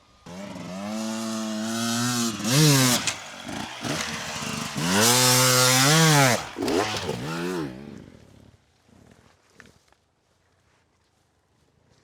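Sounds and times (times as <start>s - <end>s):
dirt bike engine revving: 0.2s - 8.2s.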